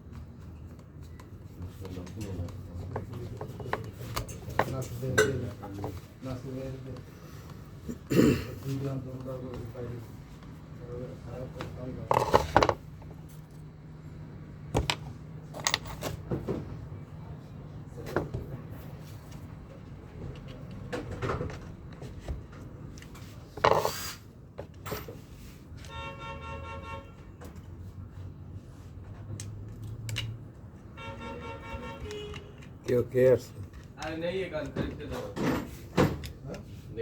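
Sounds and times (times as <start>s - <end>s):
clicks and knocks of tools: 14.8s - 16.3s, 29.2s - 30.4s.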